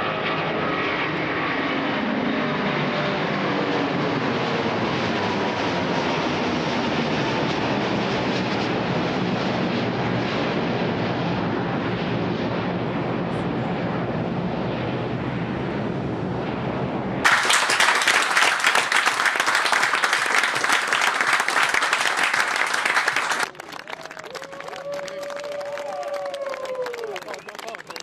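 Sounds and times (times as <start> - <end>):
jet engine rumble: 0.2 - 23.5
crowd applauding: 17.2 - 28.0.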